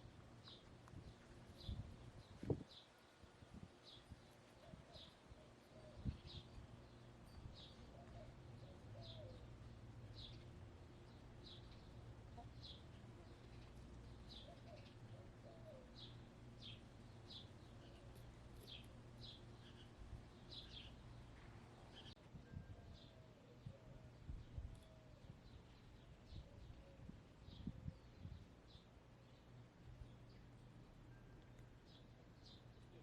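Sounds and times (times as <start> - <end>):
small bird chirping: 11.5 - 22.2.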